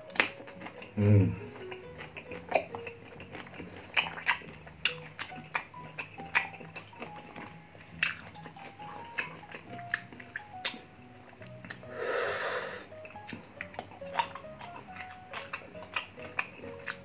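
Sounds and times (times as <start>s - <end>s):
crunchy chewing: 0.0s - 17.0s
quiet background music: 0.0s - 17.0s.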